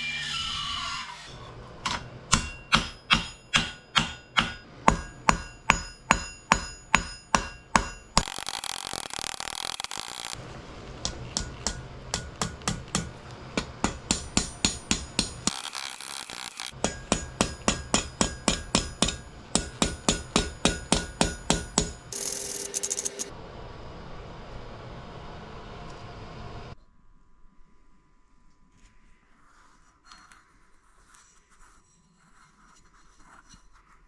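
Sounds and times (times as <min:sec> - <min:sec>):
hammer striking steel on anvil: 0:01.8 - 0:10.4, 0:11.0 - 0:23.3.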